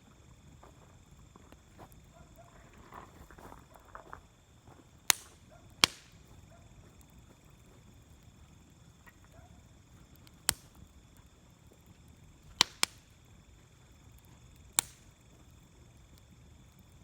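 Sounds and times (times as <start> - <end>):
wood fire crackling: 0.0 - 17.0
loud sharp fire pops: 5.0 - 6.4, 10.2 - 11.0, 12.4 - 13.3, 14.6 - 15.3.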